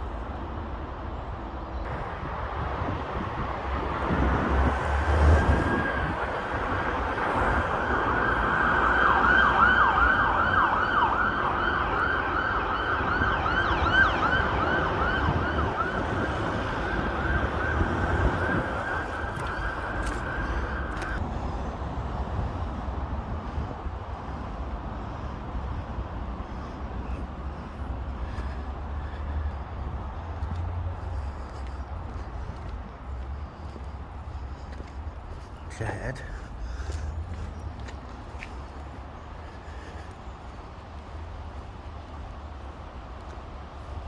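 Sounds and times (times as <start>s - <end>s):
traffic rumble: 0.0s - 44.0s
emergency siren yelping: 3.2s - 21.2s.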